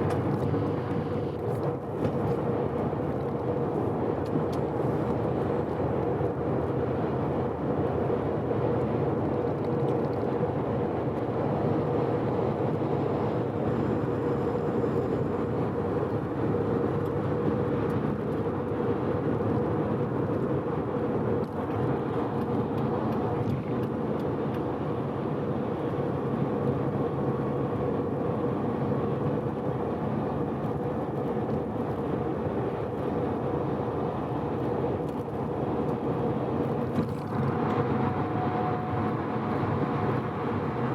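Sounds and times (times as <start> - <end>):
road noise: 0.0 - 40.9
car engine droning: 11.1 - 40.9.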